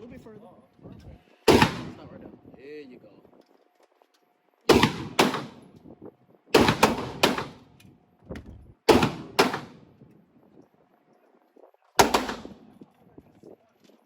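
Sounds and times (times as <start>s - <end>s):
pistol shots: 1.5s - 2.1s, 4.7s - 5.8s, 6.5s - 7.8s, 8.9s - 9.9s, 12.0s - 12.8s.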